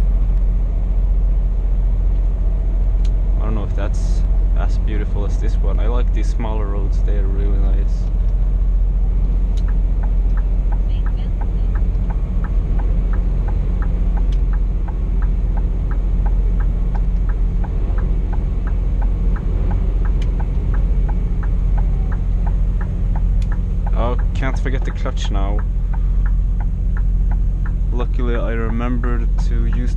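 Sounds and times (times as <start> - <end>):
truck diesel engine droning: 0.0 - 29.9
turn signal relay ticking: 9.2 - 29.9.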